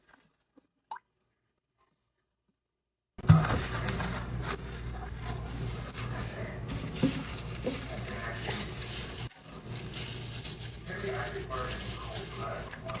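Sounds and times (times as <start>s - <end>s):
low electrical hum: 3.2s - 13.0s.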